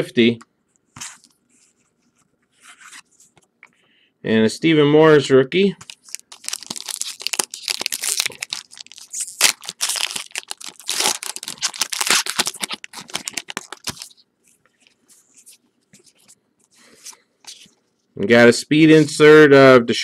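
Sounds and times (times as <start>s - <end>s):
cards rustling: 5.8s - 14.2s
wrapper tearing and crinkling: 5.8s - 14.2s.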